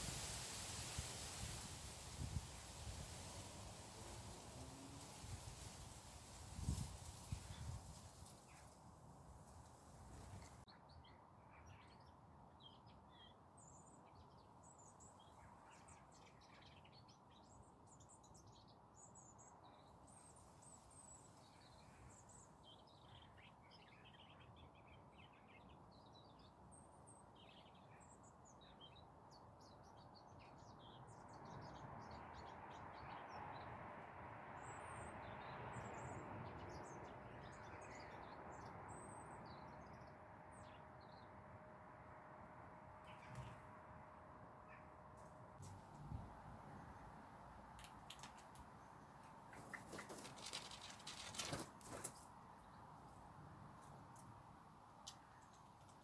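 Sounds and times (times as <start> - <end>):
small birds chirping: 0.0 - 33.8, 34.6 - 41.4, 42.9 - 56.0.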